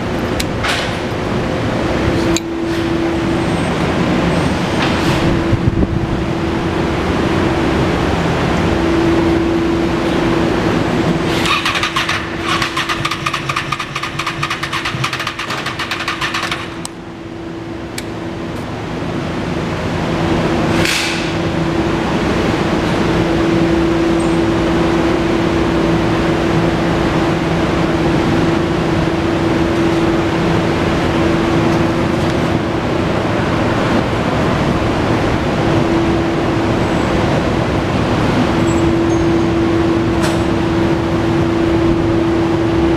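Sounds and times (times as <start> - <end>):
fast rattle: 11.4 - 16.8
motorcycle engine idling: 11.4 - 16.9.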